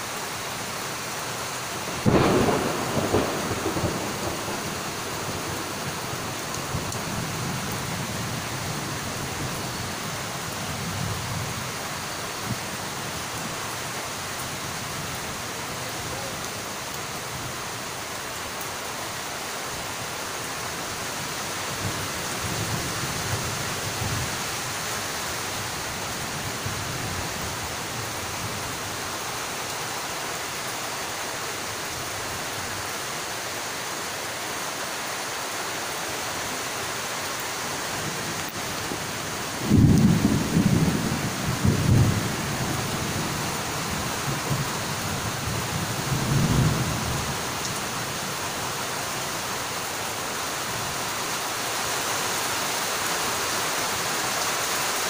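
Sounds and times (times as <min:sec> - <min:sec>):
heavy rain: 0:00.0 - 0:55.0
thunder rumbles: 0:01.9 - 0:11.8, 0:38.0 - 0:48.2.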